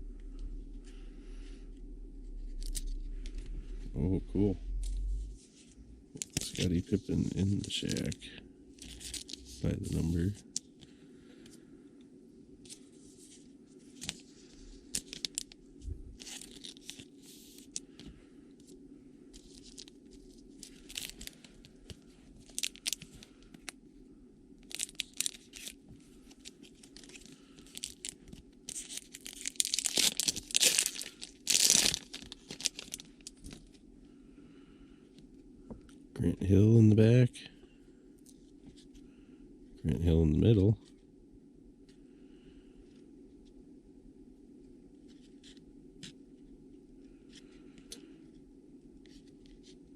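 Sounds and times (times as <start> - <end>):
foil wrapper crinkling and tearing: 8.8 - 10.4, 14.0 - 15.6, 16.2 - 18.0, 19.4 - 23.8, 24.6 - 33.8.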